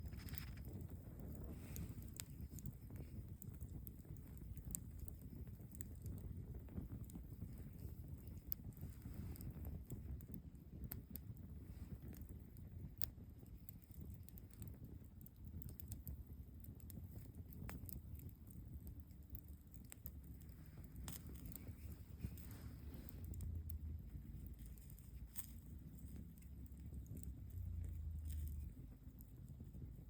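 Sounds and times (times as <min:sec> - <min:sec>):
campfire crackling: 0:00.0 - 0:30.0
low rumble: 0:19.8 - 0:30.0.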